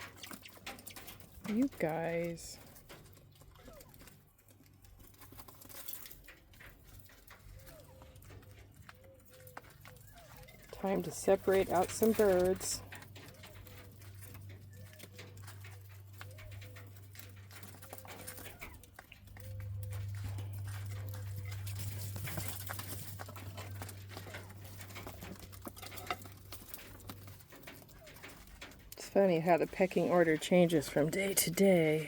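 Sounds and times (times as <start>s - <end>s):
clicks of pecking and scratching: 0.0s - 32.0s.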